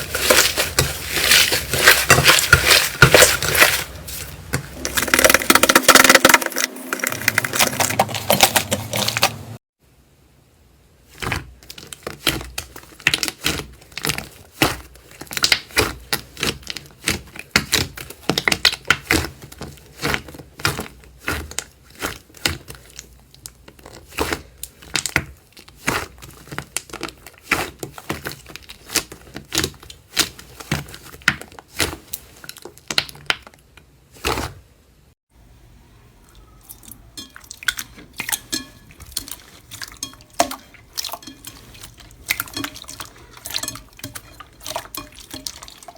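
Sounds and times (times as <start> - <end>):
slime clicking and crackling: 11.3 - 33.6.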